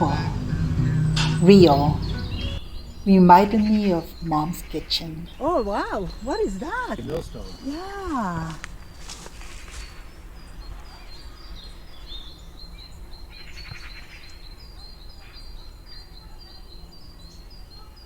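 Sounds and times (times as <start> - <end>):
low background rumble: 0.0 - 8.8
bird chirping: 0.0 - 18.0.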